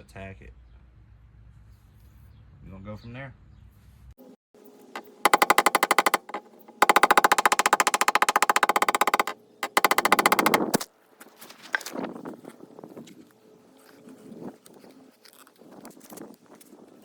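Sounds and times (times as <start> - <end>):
air hammer striking sheet metal: 5.0 - 10.8.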